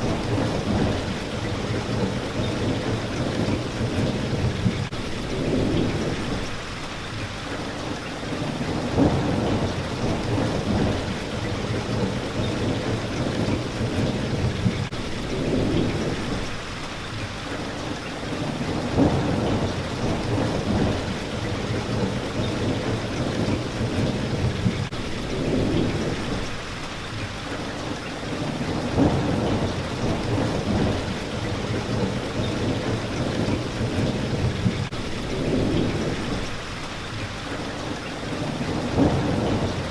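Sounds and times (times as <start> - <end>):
low thunder rumbles: 0.0 - 6.6, 8.3 - 16.6, 18.3 - 26.7, 28.3 - 36.8, 38.3 - 39.9
rain hitting a window: 0.0 - 39.9.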